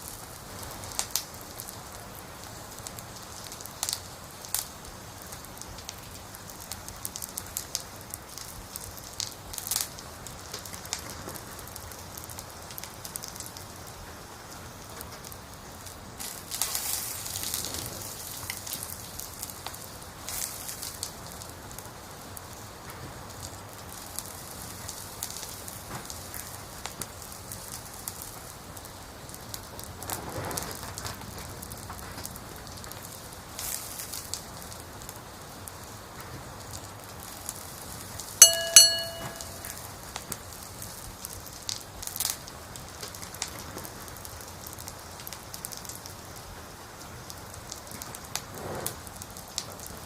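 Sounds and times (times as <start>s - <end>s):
campfire crackling: 0.0s - 50.0s.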